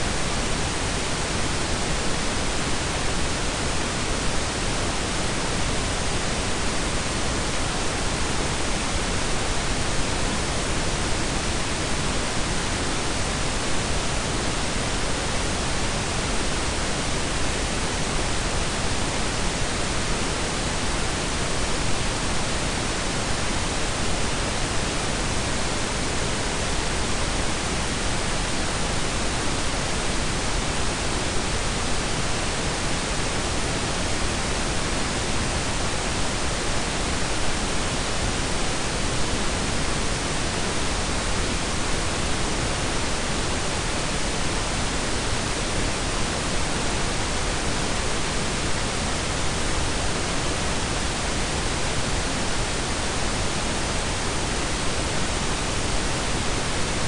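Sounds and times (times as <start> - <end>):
steady noise hiss: 0.0 - 57.0.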